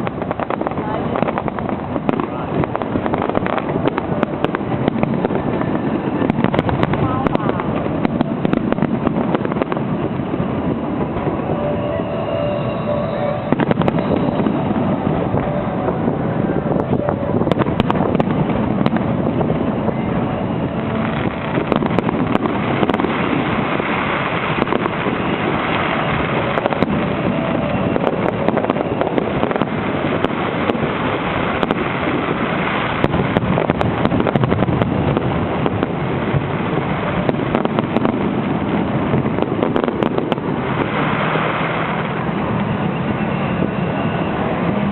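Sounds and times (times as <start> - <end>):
fireworks barrage: 0.0 - 44.9.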